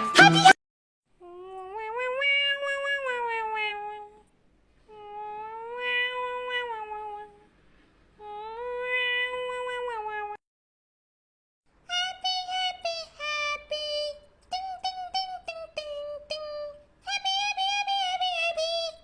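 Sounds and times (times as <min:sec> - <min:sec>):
cat meowing: 0:01.8 - 0:04.1, 0:05.5 - 0:07.3, 0:08.6 - 0:10.4.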